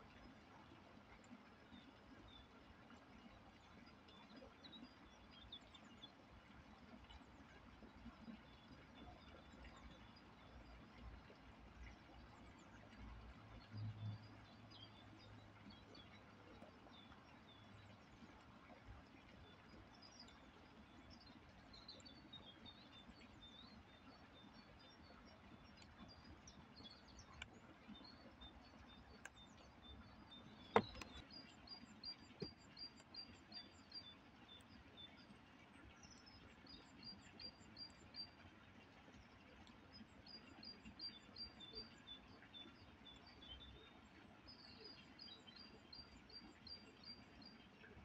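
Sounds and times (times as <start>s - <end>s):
songbirds chirping: 0.0s - 48.0s.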